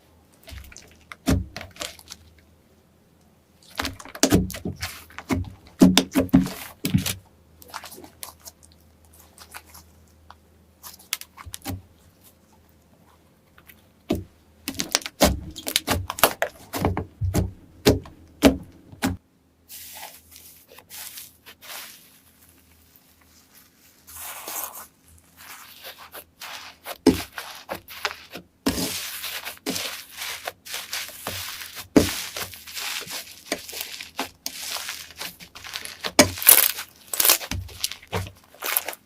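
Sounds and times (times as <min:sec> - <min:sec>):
soft hiss: 0:19.5 - 0:39.0.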